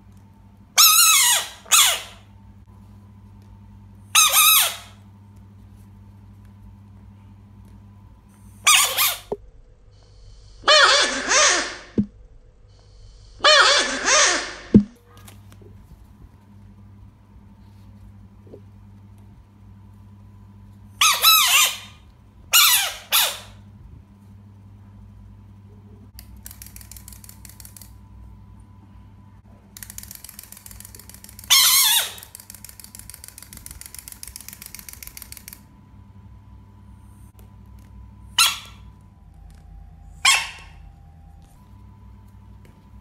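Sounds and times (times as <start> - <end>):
electrical hum: 0.0 - 43.0
clockwork toy clicking whirr: 26.2 - 28.0, 29.7 - 35.7.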